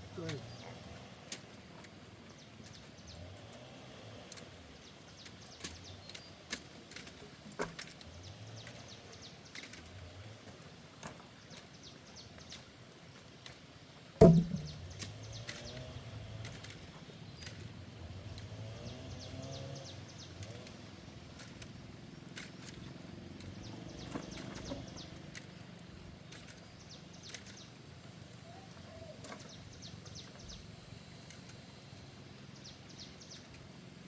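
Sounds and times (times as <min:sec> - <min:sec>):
wood thudding on ground: 0:14.2 - 0:15.2.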